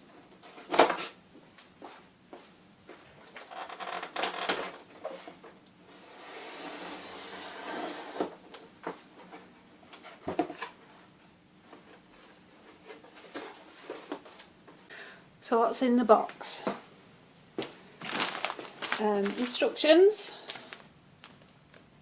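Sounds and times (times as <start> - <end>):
cardboard scraping rasp: 5.1 - 8.4.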